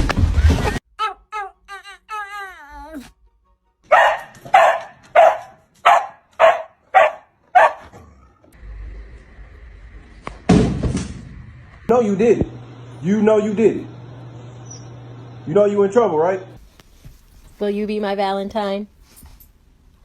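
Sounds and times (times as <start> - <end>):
dog barking: 3.9 - 7.9.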